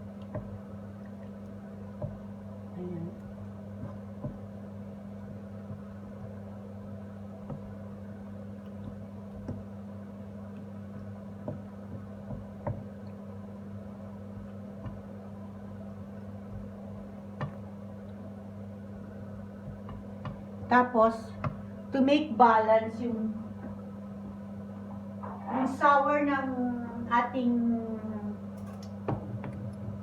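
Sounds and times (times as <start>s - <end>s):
sauce simmering and popping: 0.0s - 20.7s
low hum: 0.0s - 30.0s.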